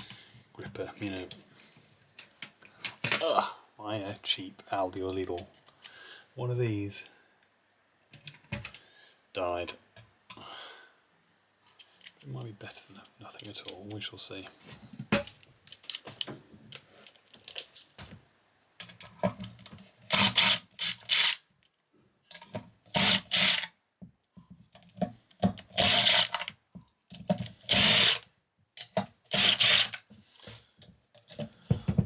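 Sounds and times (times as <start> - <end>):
cordless drill bursts: 20.1 - 21.4, 22.9 - 23.7, 25.8 - 26.4, 27.7 - 28.2, 29.3 - 30.0
small parts clicking: 24.7 - 28.2.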